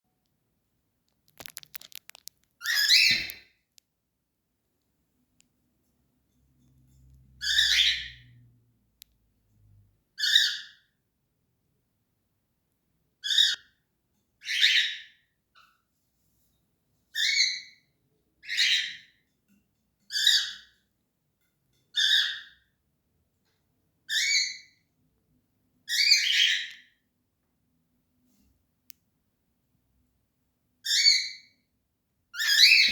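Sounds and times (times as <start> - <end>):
cockatiel harsh rasping calls: 2.6 - 3.4.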